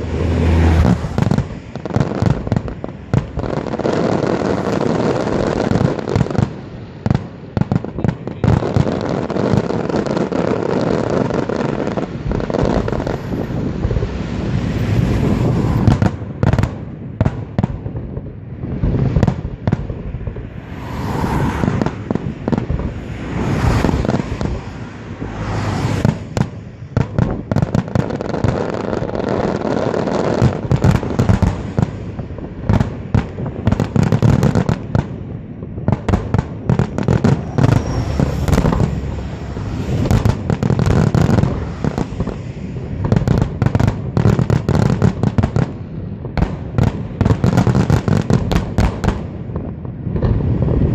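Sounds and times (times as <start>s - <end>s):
firework crackling: 0.0s - 50.9s.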